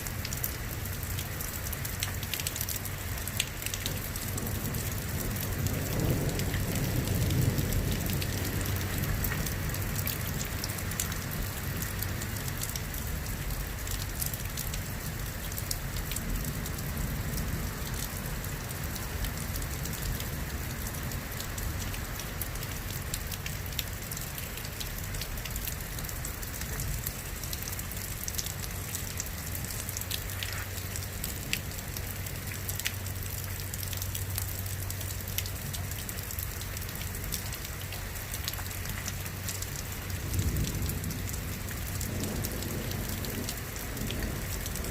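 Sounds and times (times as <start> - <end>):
rain falling: 0.0 - 44.9.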